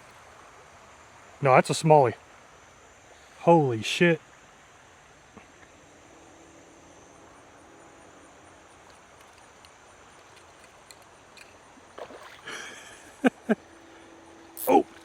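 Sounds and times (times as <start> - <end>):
creek water flowing: 0.0 - 5.4, 11.6 - 15.0.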